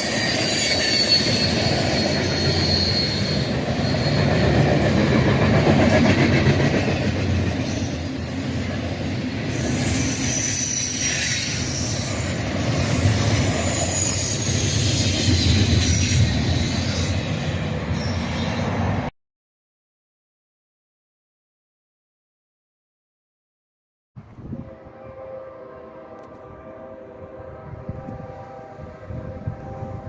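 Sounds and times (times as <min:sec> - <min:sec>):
high-pitched wheel squeal: 0:00.0 - 0:04.6, 0:09.4 - 0:19.0
freight train cars rumbling: 0:00.0 - 0:19.1, 0:24.2 - 0:30.0.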